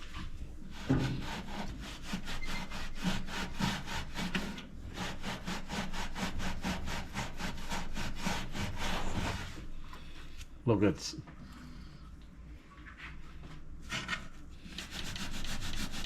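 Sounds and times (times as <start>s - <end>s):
sponge scrubbing metal surface: 0.7s - 9.7s, 14.1s - 16.0s.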